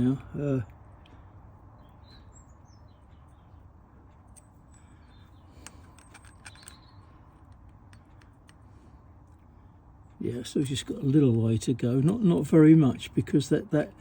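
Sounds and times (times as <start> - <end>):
light metal clicks: 4.0 - 12.4.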